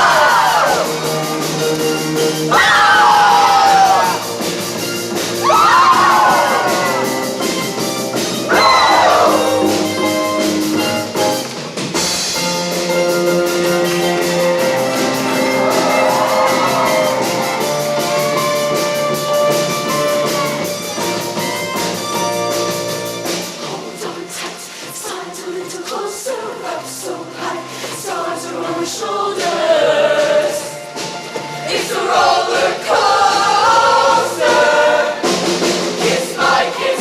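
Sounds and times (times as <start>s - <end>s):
steady drum beat: 0.0s - 24.4s, 29.1s - 37.0s
voices singing: 8.5s - 10.0s, 23.6s - 31.0s, 31.6s - 37.0s.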